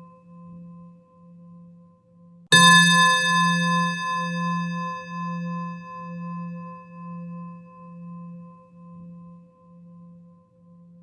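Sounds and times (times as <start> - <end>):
singing bowl ringing: 2.5 - 10.2.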